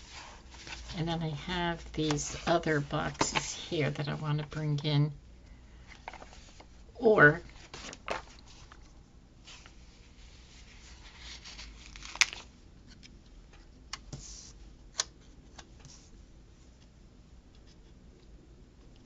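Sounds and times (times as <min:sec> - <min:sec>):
paper rustling: 0:00.0 - 0:01.1, 0:05.9 - 0:06.7, 0:07.5 - 0:13.1.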